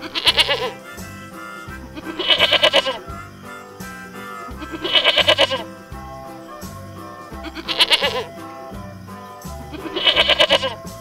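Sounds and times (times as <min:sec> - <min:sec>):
goat bleating: 0:00.0 - 0:06.0, 0:07.2 - 0:08.3, 0:09.8 - 0:10.8
background music: 0:00.0 - 0:11.0.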